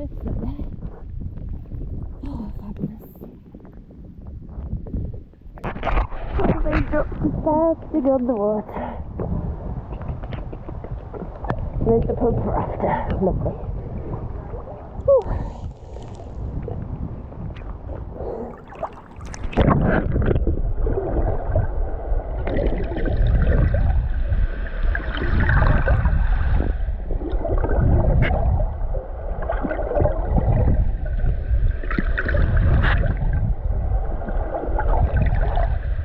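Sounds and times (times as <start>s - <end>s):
heavy low rumble: 0.0s - 5.5s
water splashing and sloshing: 0.0s - 36.0s.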